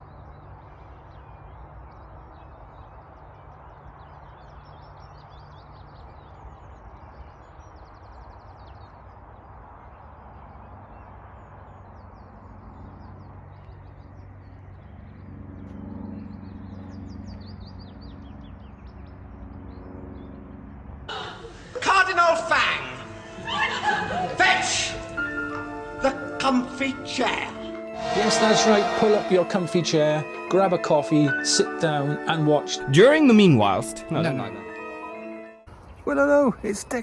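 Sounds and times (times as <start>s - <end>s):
small birds chirping: 0.0s - 15.2s
low hum: 27.9s - 30.0s.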